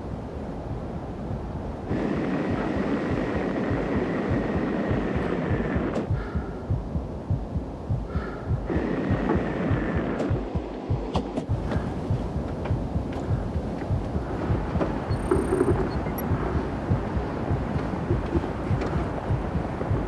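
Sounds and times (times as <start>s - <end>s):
low heartbeat-like throbbing pulse: 1.3s - 20.0s
rushing wind with faint whistle: 11.5s - 20.0s.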